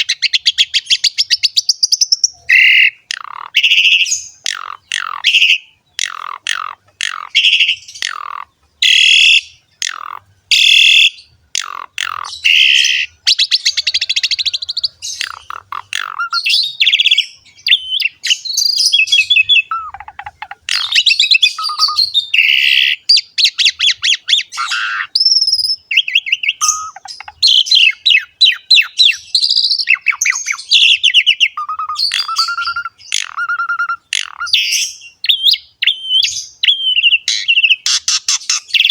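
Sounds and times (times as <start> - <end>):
starling singing: 0.0 - 38.9.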